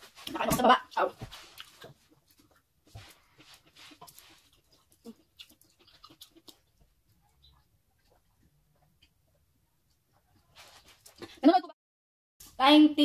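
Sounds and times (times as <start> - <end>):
chewing with mouth clicks: 0.2 - 11.3.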